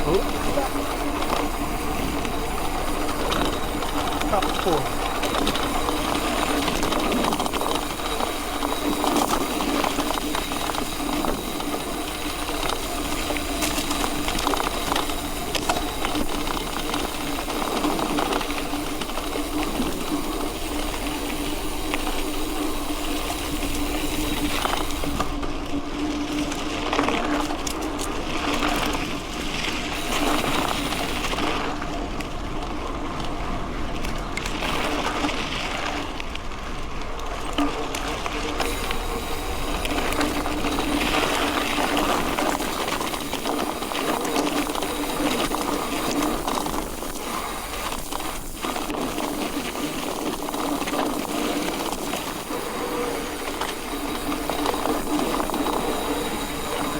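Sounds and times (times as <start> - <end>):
steady hum: 0.0 - 25.4, 38.6 - 56.9
bike clicks and rattles: 0.0 - 56.9
bike tyres crunching over gravel: 0.0 - 56.9.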